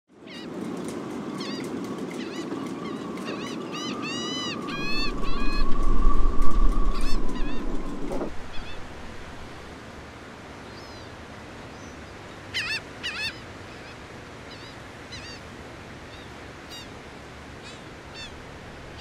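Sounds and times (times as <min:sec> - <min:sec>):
faint steady hum: 0:02.8 - 0:10.0
low rumble: 0:04.4 - 0:09.7.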